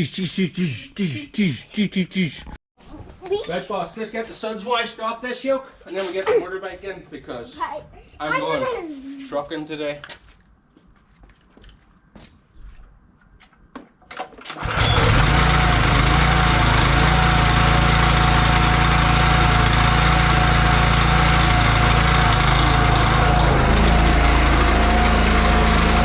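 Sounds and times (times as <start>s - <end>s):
pressure washer running: 14.6s - 26.0s
steady tone: 22.9s - 26.0s.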